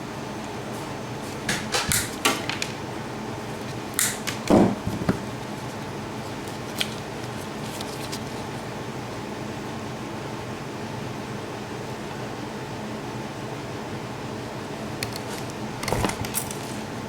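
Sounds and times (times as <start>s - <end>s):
steady background hum: 0.0s - 17.0s
tools clicking and clattering: 1.3s - 2.8s, 15.0s - 16.9s.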